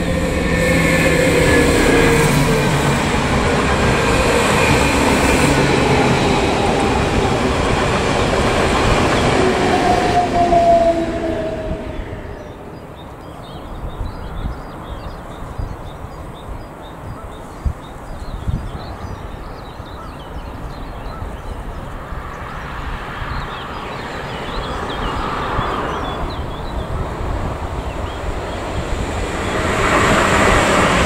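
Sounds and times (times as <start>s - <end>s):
electric freight train rumble: 0.0s - 13.2s, 24.1s - 31.0s
wind buffeting microphone: 0.0s - 31.0s
birds chirping: 12.2s - 31.0s.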